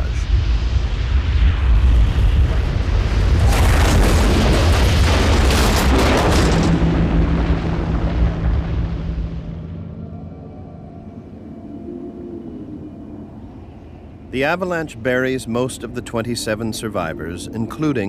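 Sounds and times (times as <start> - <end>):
avalanche rumble and snow rush: 0.0 - 11.4.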